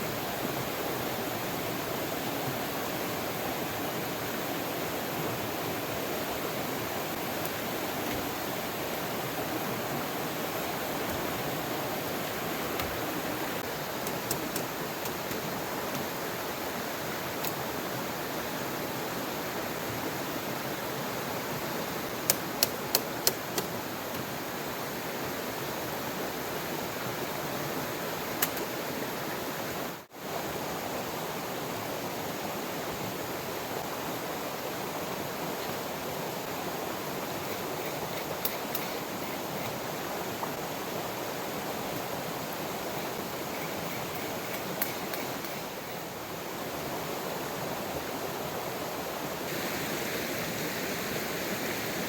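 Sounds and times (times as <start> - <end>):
river flowing: 0.0 - 52.0
sharp clicks: 14.0 - 16.0, 22.3 - 23.8, 28.4 - 28.7, 37.5 - 39.4, 43.6 - 45.6.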